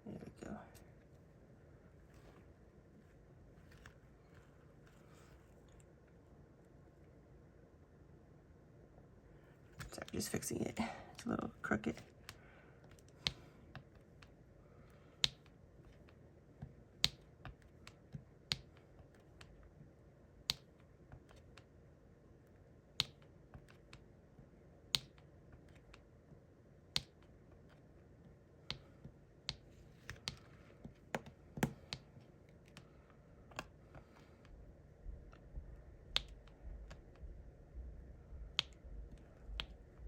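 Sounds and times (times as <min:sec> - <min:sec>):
pen clicks and taps: 0:15.2 - 0:19.6, 0:20.4 - 0:21.7, 0:23.0 - 0:24.1, 0:24.9 - 0:26.1, 0:26.9 - 0:32.9, 0:36.1 - 0:37.2, 0:38.5 - 0:39.8.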